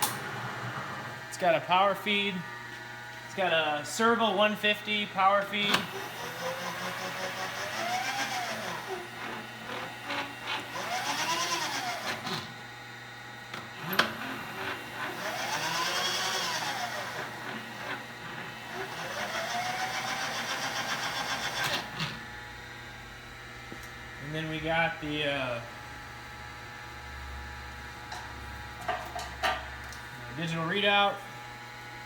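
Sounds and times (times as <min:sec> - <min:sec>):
power feed motor whining: 0:02.1 - 0:24.2.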